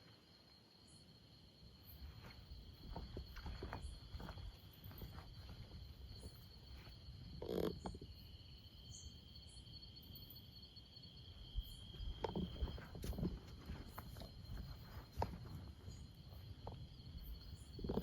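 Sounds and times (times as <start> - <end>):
insects chorus: 0.0 - 18.0
rustling: 11.9 - 18.0.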